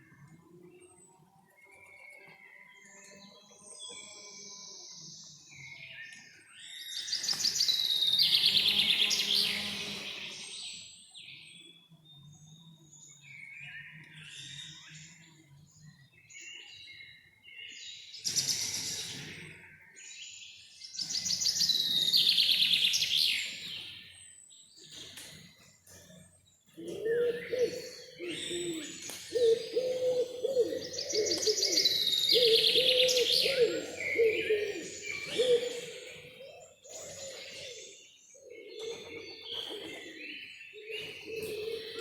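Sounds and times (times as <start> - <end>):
birds singing: 0.0 - 42.0
trilled bird song: 20.2 - 42.0.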